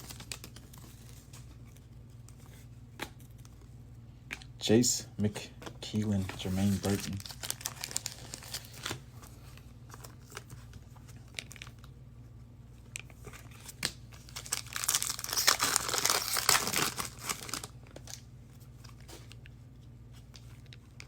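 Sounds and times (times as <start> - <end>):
foil pack crinkling and tearing: 0.0 - 1.3, 6.4 - 9.2, 9.9 - 11.9, 13.4 - 19.1.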